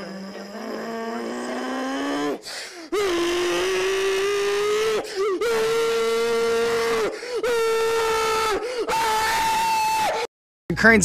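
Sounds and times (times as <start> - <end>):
man screaming: 2.9 - 10.3.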